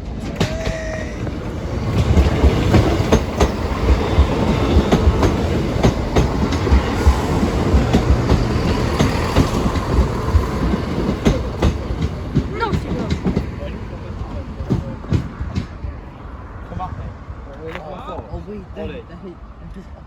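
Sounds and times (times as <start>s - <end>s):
wheels clicking over rail joints: 0.0s - 15.9s
train rumbling past: 0.0s - 19.6s.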